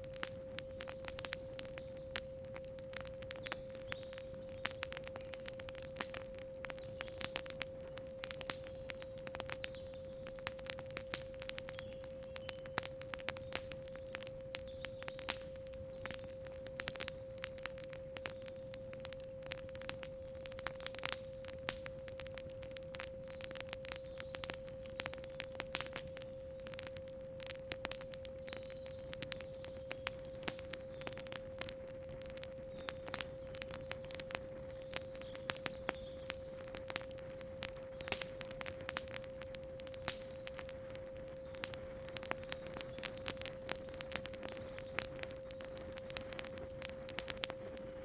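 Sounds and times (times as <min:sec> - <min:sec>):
wood fire crackling: 0:00.0 - 0:48.0.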